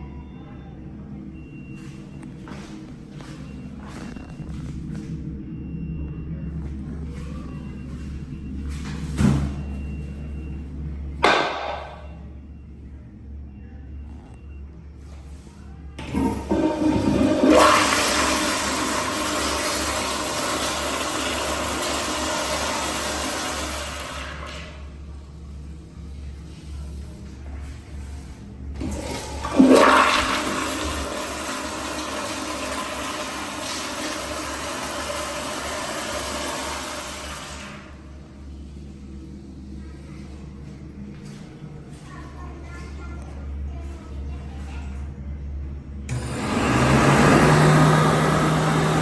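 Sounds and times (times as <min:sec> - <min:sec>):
low hum: 0:00.0 - 0:42.1
toilet flushing: 0:11.2 - 0:12.2, 0:16.0 - 0:38.4, 0:46.1 - 0:49.0.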